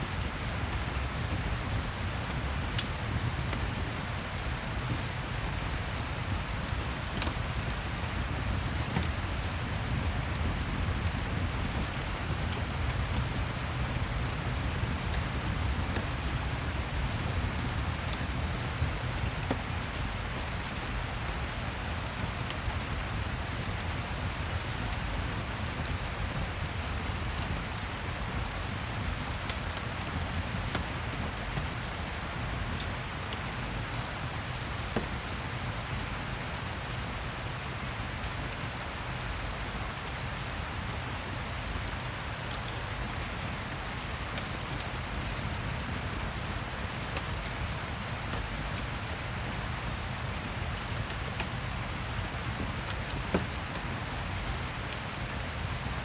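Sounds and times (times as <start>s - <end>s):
crackling fireplace: 0.0s - 56.0s
steady rain: 0.0s - 56.0s
fire pops: 33.9s - 39.0s.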